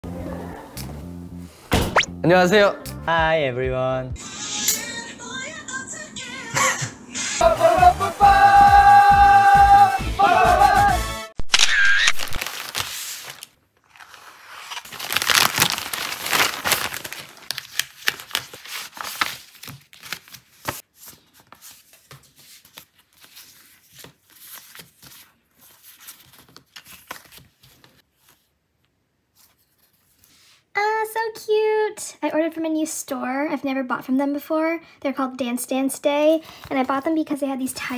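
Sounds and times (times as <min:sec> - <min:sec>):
envelope being slit and torn: 0:11.5 - 0:20.8
plastic crinkling and rustling: 0:12.2 - 0:28.4.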